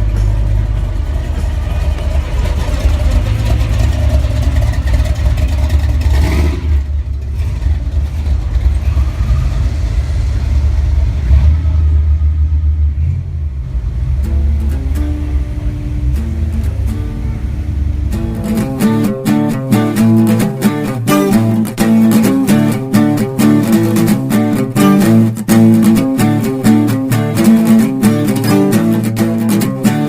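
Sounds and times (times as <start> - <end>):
car engines revving: 0.0 - 30.0.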